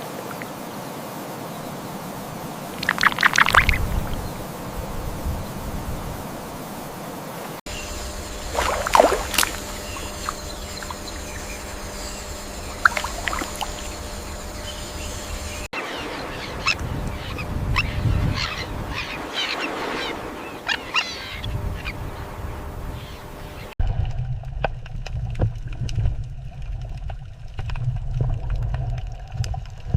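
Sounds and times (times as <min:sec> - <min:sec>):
outdoor background noise: 0:00.0 - 0:29.9
bird calls and chirps: 0:07.7 - 0:22.3
low rumble: 0:23.8 - 0:29.9.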